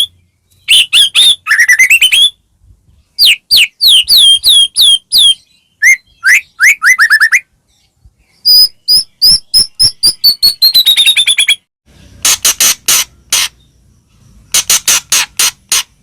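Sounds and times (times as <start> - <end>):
songbird singing varied phrases: 0.0 - 11.6.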